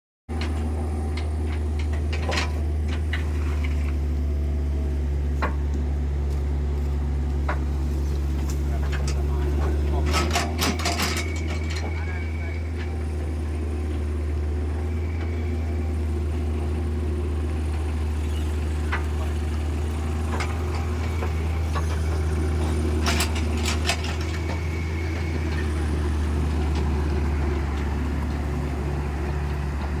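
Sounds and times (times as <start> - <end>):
excavator diesel engine running: 0.3 - 30.0
digging clicks and knocks: 7.3 - 12.0.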